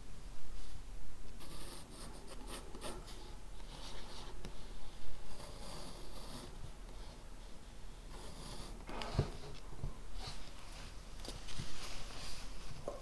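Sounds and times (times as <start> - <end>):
low room hum: 0.0 - 13.0
pen scratching on paper: 5.3 - 6.6.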